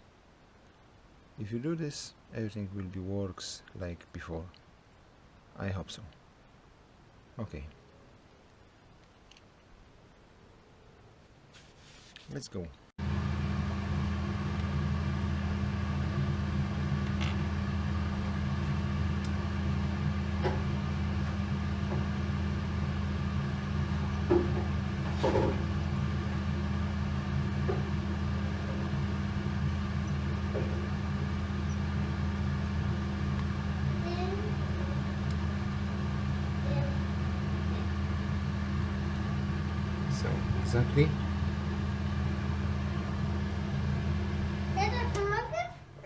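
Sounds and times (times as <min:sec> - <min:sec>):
soldering equipment mains hum: 0:13.0 - 0:45.2.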